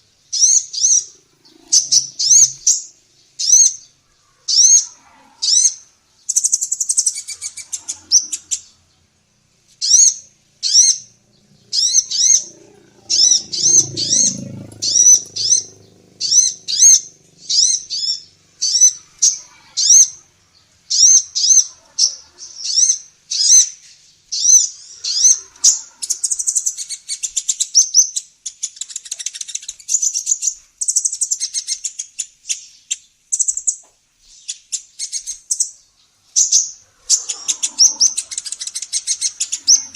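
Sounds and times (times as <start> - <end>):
sunbird chirping and trilling: 0.0 - 39.9
low rumble: 11.1 - 19.5.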